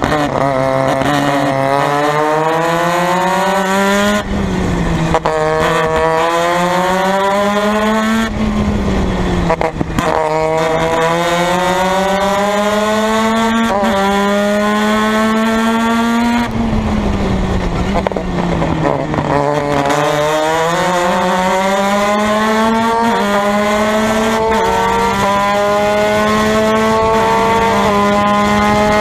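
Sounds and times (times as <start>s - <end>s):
race car engine accelerating: 0.0s - 29.0s.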